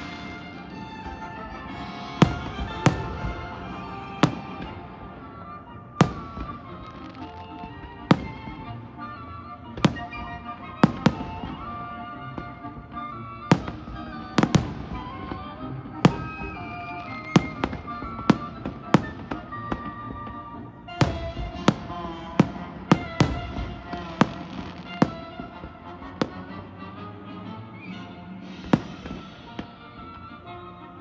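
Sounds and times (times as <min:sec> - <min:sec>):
music playing: 0:00.0 - 0:31.0
firework shells bursting: 0:28.5 - 0:29.7.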